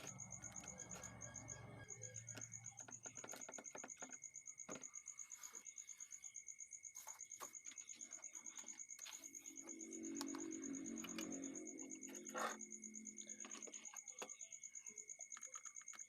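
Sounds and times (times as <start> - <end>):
faint clicks and taps: 0.0 - 5.7, 13.2 - 16.0
cricket trilling: 0.0 - 16.0.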